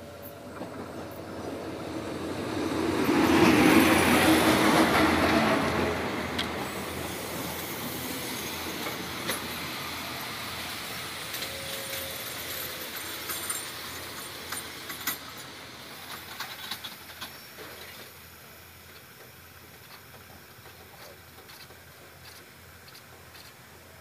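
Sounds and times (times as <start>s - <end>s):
passenger train passing: 0.0s - 24.0s.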